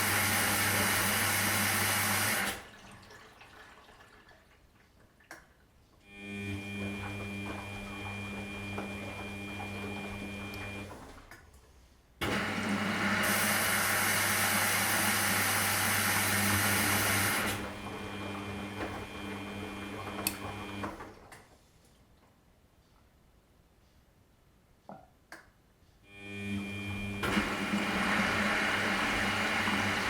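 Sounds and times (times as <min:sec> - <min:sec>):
washing machine motor hum: 0:00.0 - 0:04.3, 0:06.1 - 0:11.4, 0:12.2 - 0:21.4, 0:26.1 - 0:30.0.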